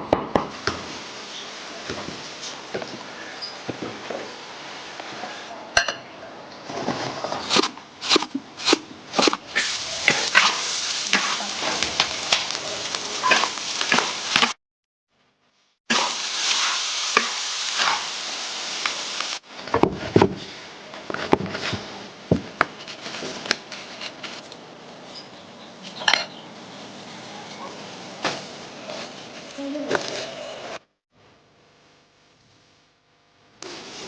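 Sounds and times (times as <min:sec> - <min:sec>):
food sizzling in a pan: 0:08.6 - 0:14.6, 0:15.9 - 0:19.5, 0:33.6 - 0:34.0.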